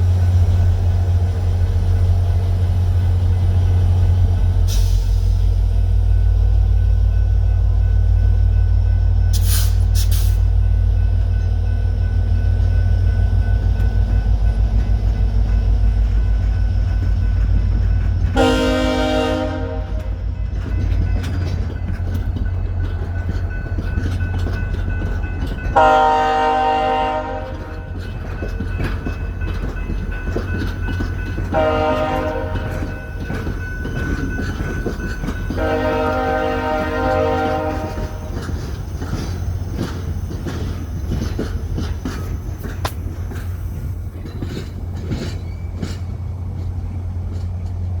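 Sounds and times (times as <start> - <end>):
diesel locomotive rumbling: 0.0 - 48.0
multi-note air horn blasts: 18.4 - 20.2, 25.8 - 27.7, 31.6 - 32.8, 35.6 - 38.2.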